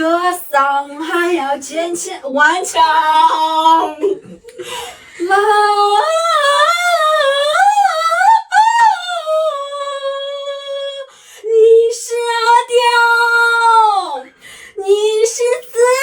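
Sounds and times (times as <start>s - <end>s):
high voice singing a wordless vowel: 0.0s - 4.4s, 5.2s - 16.0s
short breath: 4.5s - 5.2s, 14.3s - 14.8s.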